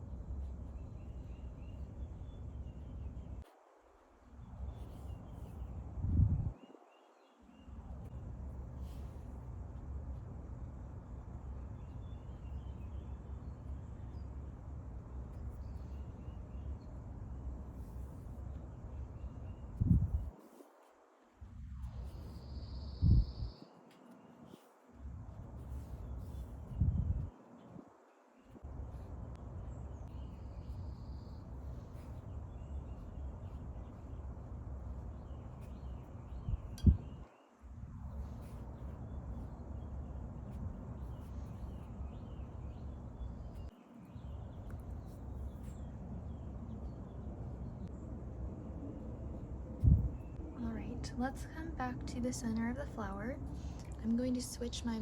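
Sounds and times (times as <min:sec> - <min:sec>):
faint bird chirps: 0:00.1 - 0:03.6, 0:04.3 - 0:08.2, 0:11.4 - 0:14.6, 0:15.2 - 0:20.9, 0:21.6 - 0:24.8, 0:25.6 - 0:48.1
steady low rumble: 0:04.4 - 0:06.6, 0:07.7 - 0:20.4, 0:21.4 - 0:23.6, 0:25.0 - 0:27.8, 0:28.4 - 0:55.0.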